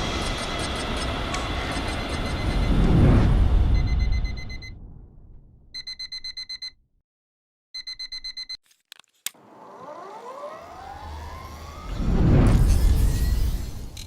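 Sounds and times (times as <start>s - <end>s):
rapid high alarm beeps: 1.8s - 2.8s, 3.7s - 4.8s, 5.8s - 6.8s, 7.8s - 8.6s
rising electronic tones: 9.4s - 14.0s.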